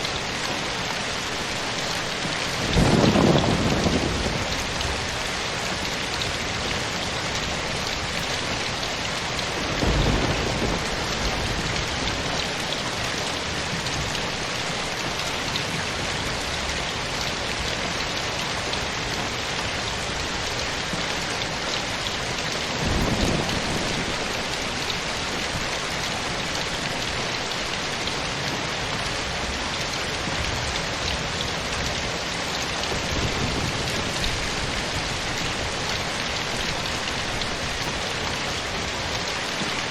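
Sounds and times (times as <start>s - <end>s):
steady rain falling: 0.0s - 39.9s
low thunder rumbles: 2.6s - 16.7s, 22.2s - 27.0s, 32.8s - 38.9s.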